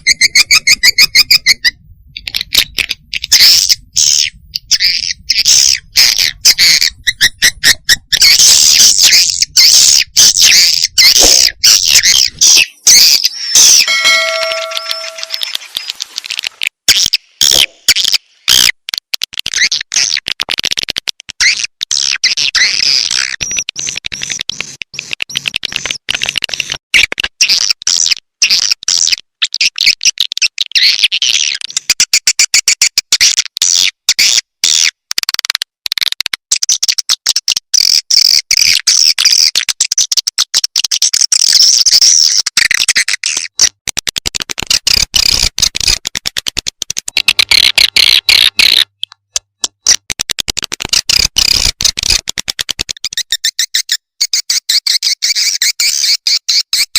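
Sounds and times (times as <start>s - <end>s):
swiftlets twittering: 12.6s - 16.4s.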